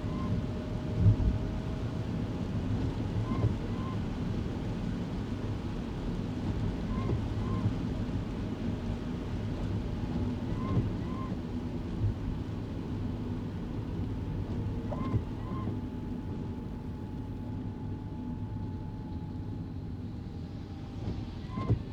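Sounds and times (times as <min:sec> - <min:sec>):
windscreen wipers squeaking: 0:03.2 - 0:04.0, 0:09.6 - 0:12.4, 0:13.5 - 0:16.2, 0:21.4 - 0:21.8.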